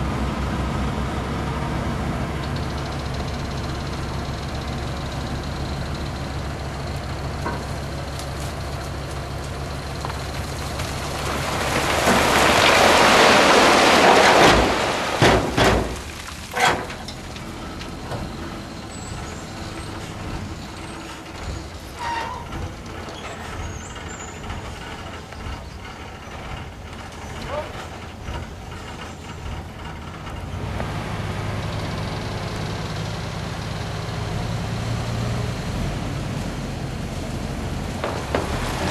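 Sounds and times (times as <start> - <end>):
heavy truck engine running: 0.0 - 38.9.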